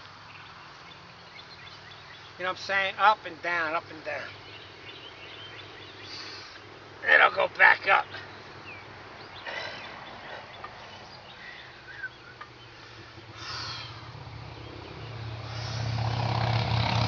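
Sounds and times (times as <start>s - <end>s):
vehicle engine approaching: 8.1s - 17.0s
faint bird chirps: 8.2s - 15.2s.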